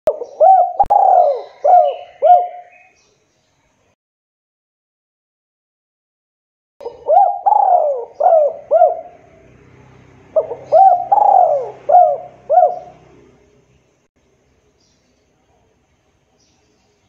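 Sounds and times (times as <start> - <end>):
dove cooing: 0.1 - 2.9, 6.8 - 9.6, 10.3 - 13.4.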